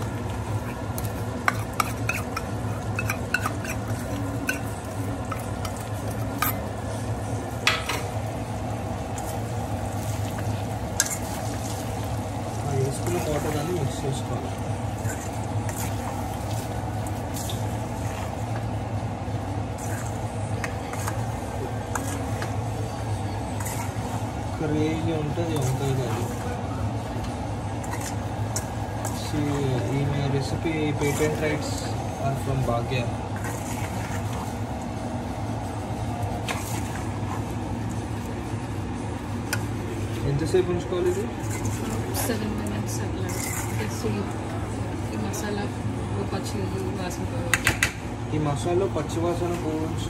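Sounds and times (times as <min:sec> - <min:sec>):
food frying with crackles and pops: 0:00.0 - 0:26.4
steady low hum: 0:00.0 - 0:50.0
scrape in a wok: 0:01.4 - 0:04.7, 0:10.9 - 0:11.9, 0:14.9 - 0:18.4, 0:19.8 - 0:22.6, 0:23.4 - 0:24.3, 0:27.8 - 0:29.4, 0:30.6 - 0:31.9, 0:33.0 - 0:34.7, 0:41.0 - 0:42.5, 0:43.2 - 0:44.2.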